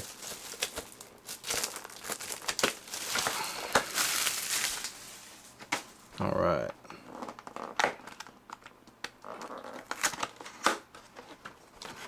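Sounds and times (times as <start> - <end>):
tape being peeled and torn: 0.0 - 5.9
wrapping crinkling: 0.0 - 6.2, 7.1 - 12.0.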